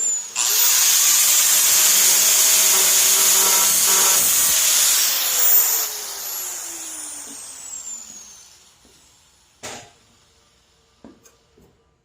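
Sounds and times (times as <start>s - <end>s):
power tool whine spinning down: 0.0s - 9.6s.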